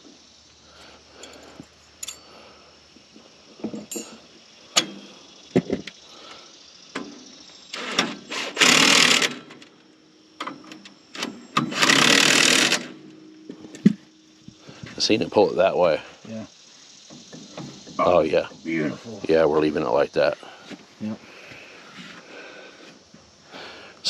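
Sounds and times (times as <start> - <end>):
metal clinks and knocks: 1.2 - 2.3, 3.6 - 5.0
power tool running: 7.7 - 9.6, 11.1 - 13.1.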